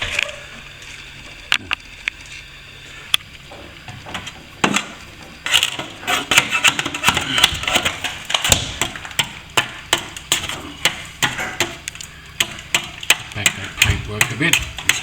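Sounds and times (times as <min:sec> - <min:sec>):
hand tool scraping paint: 0:05.4 - 0:11.8, 0:12.8 - 0:15.0.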